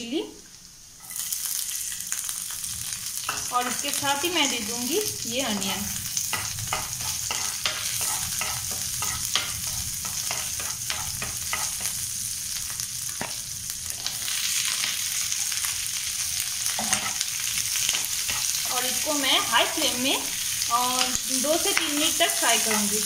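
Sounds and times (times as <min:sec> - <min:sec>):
vegetables sizzling in oil: 0:00.0 - 0:23.0
metal spatula scraping pan: 0:06.3 - 0:11.9, 0:16.0 - 0:18.6.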